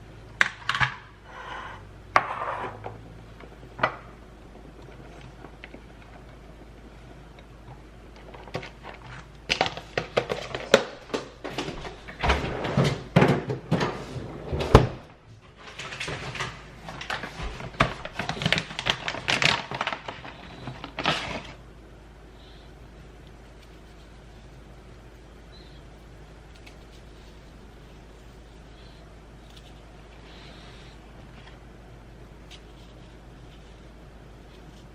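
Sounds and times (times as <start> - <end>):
objects knocking and clattering: 8.2 - 19.6.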